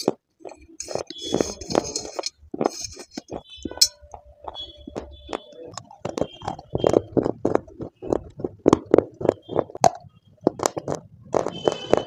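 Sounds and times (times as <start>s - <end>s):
chewing crunchy clay: 0.0s - 12.0s.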